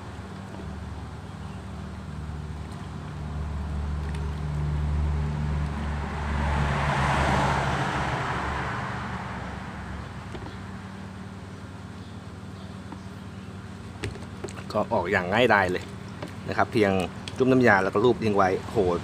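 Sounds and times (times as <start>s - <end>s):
road noise: 0.0s - 19.0s
vehicle engine driving past: 2.8s - 11.3s.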